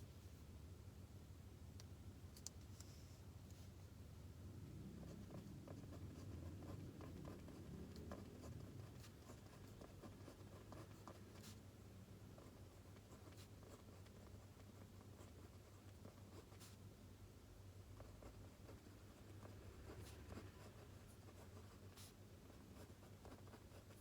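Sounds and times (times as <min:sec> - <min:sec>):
writing scratching on paper: 0:05.1 - 0:11.6, 0:12.4 - 0:16.8, 0:18.0 - 0:24.0.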